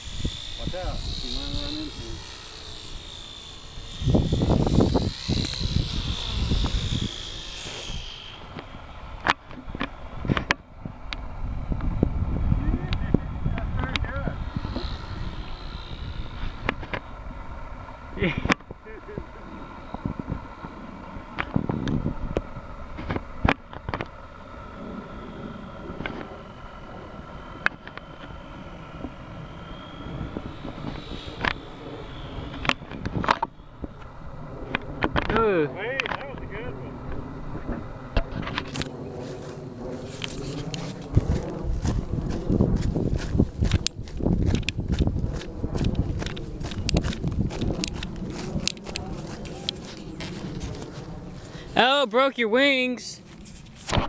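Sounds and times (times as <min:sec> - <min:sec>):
wind buffeting microphone: 0:00.0 - 0:51.8
model plane motor whining: 0:00.0 - 0:51.9
sharp clicks: 0:40.1 - 0:51.0.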